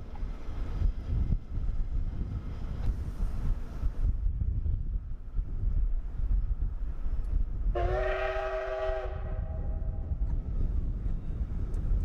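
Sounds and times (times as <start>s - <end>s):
wind buffeting microphone: 0.0s - 12.0s
steam locomotive whistle: 7.7s - 9.8s.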